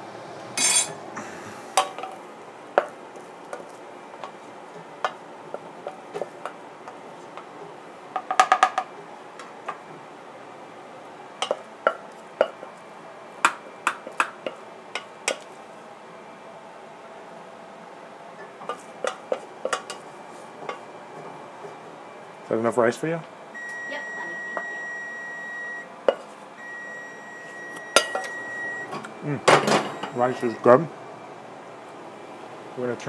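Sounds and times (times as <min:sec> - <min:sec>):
utensil knocking on dishes: 0:08.1 - 0:08.9.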